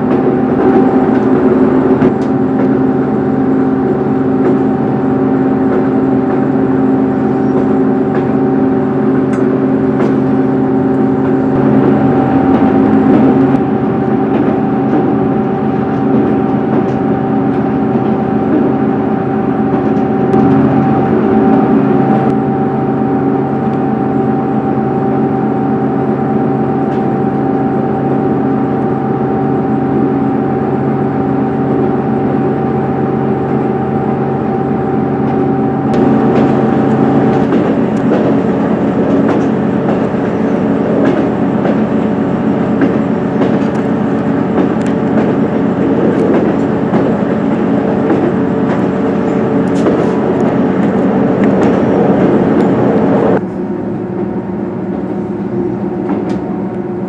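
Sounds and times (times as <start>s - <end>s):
track rattles and clicks: 0.0s - 22.4s, 35.2s - 53.5s, 56.0s - 56.8s
diesel train engine drone: 0.0s - 57.0s
train wheels rumbling: 0.0s - 57.0s.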